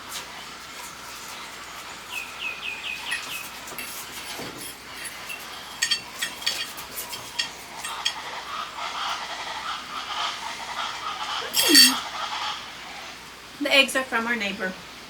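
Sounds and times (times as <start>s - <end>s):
bird chirping: 2.1s - 3.6s.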